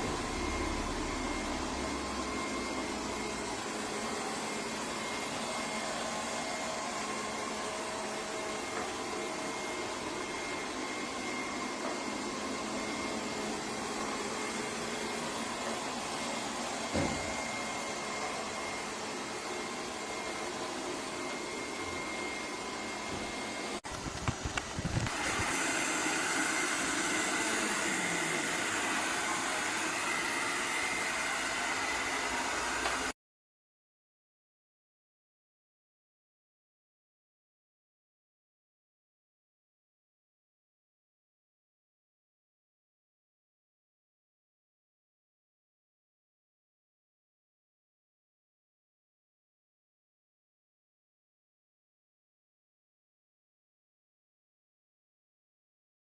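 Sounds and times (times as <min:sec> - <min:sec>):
robot vacuum whirring: 0:00.0 - 0:33.1.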